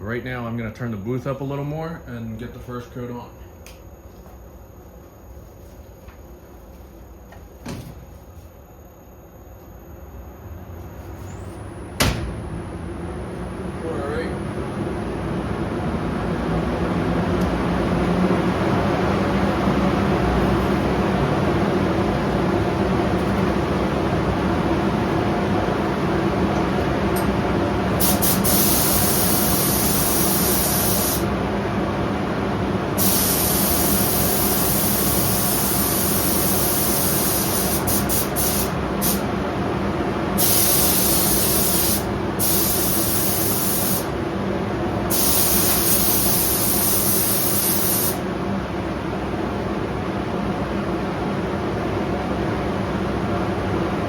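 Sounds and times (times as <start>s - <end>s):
exhaust fan droning: 0.0s - 54.0s
spray gun hissing: 28.0s - 31.3s, 33.0s - 39.3s, 40.4s - 44.1s, 45.1s - 48.2s.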